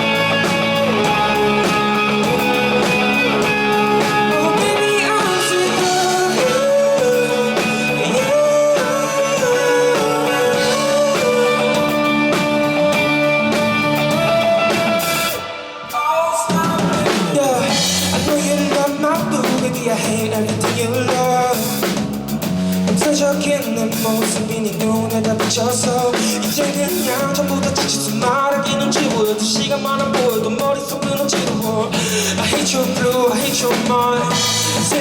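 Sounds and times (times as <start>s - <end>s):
lead guitar melody: 0.0s - 15.9s
bass guitar: 0.0s - 35.0s
drums: 0.0s - 35.0s.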